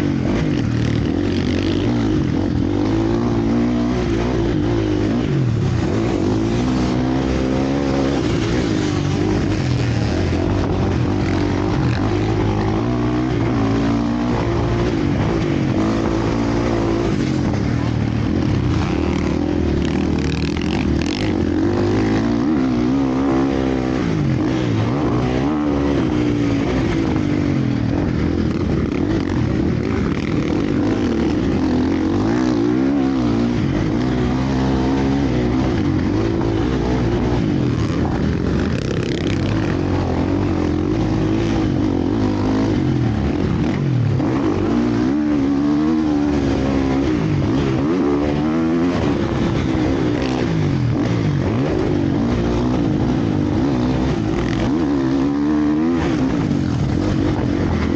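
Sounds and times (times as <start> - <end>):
motocross bike engines revving: 0.0 - 57.9.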